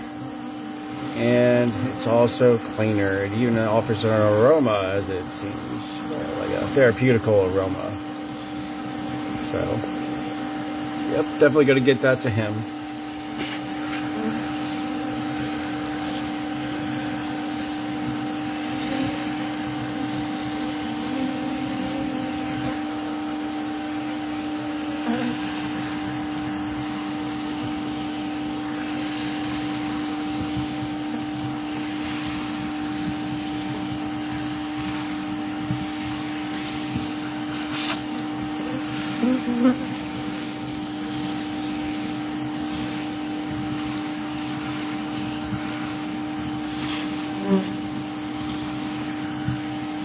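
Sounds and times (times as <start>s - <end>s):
vacuum motor humming: 0.0s - 50.0s.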